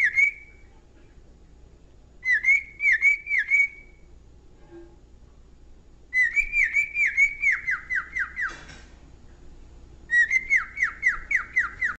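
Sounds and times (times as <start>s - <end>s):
cockatiel whistling: 0.0s - 0.7s, 2.2s - 4.1s, 6.1s - 8.6s, 10.1s - 12.0s.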